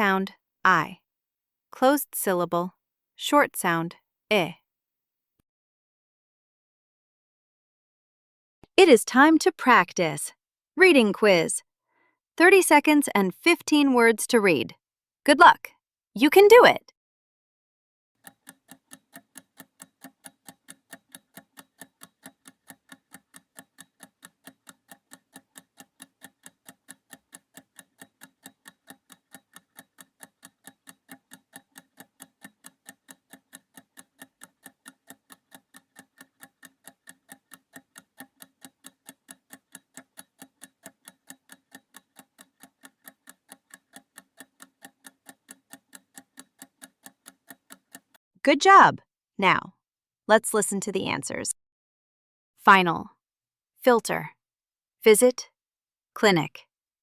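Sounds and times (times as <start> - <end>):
clock ticking: 18.2 - 48.2.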